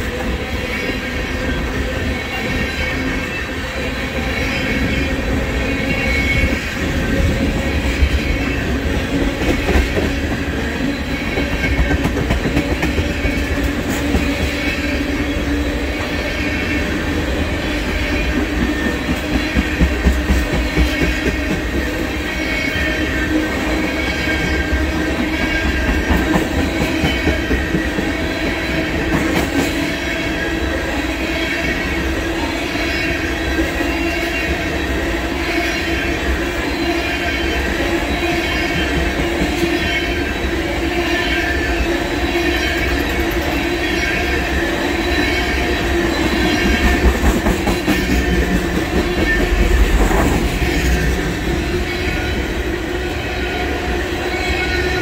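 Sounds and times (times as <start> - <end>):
train wheels clattering on rails: 0.0 - 30.5, 41.4 - 52.6.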